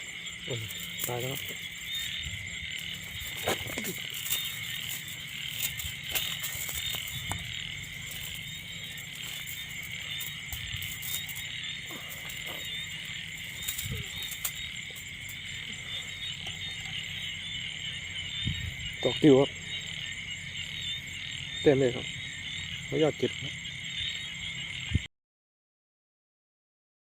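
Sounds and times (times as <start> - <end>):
frogs croaking: 0.0 - 25.1
insects trilling: 0.0 - 25.1.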